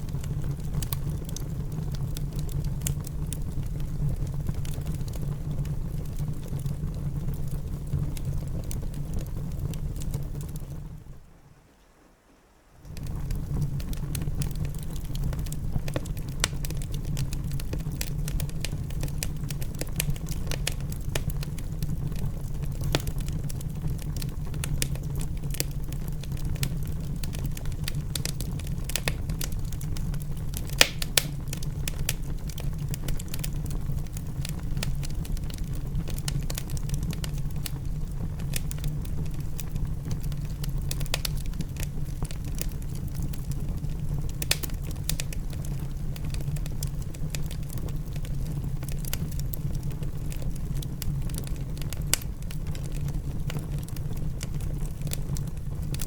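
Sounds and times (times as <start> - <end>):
wood fire crackling: 0.0 - 11.7, 12.7 - 56.0
rain rumble: 0.0 - 56.0
sharp fire pops: 12.9 - 49.9.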